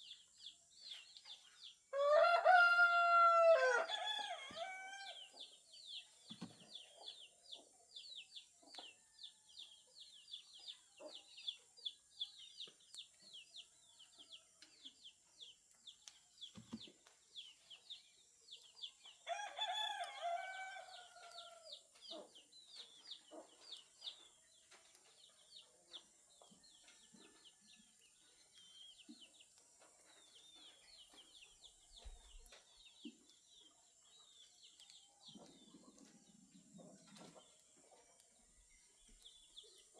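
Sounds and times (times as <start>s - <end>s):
small birds chirping: 0.0s - 2.3s, 3.6s - 39.9s
rooster crowing: 1.9s - 5.2s, 19.3s - 21.7s.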